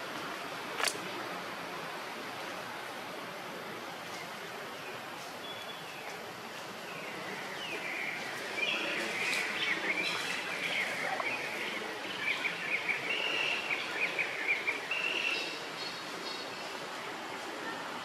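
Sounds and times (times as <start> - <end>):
steady background hiss: 0.0 - 18.0
birds chirping: 6.9 - 16.8.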